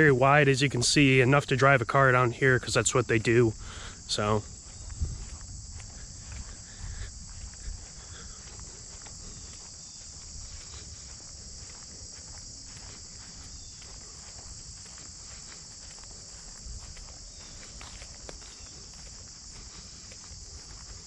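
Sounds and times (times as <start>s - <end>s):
footsteps crunching on dirt: 0.0s - 21.0s
insects chirping: 0.0s - 21.0s.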